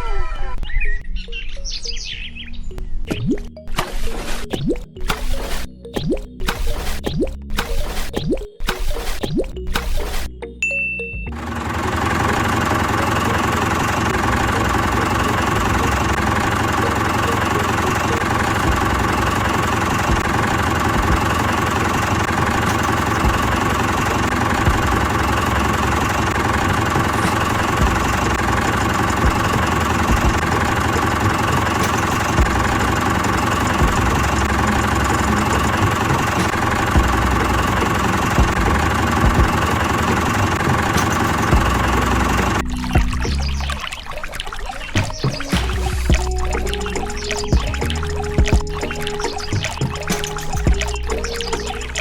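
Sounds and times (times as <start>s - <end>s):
small tractor engine running: 11.3s - 43.1s.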